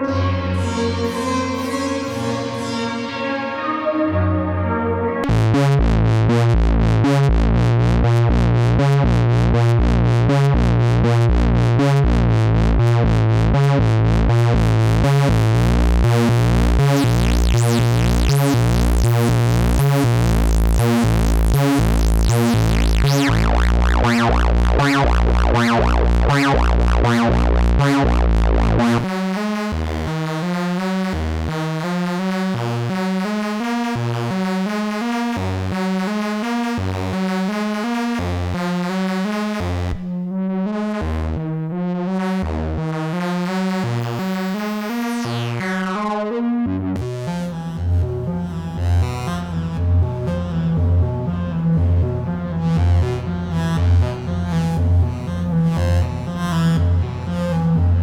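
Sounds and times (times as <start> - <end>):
heavy synth bass: 0.0 - 31.9, 47.0 - 58.0
analog synthesizer note sequence: 0.0 - 58.0.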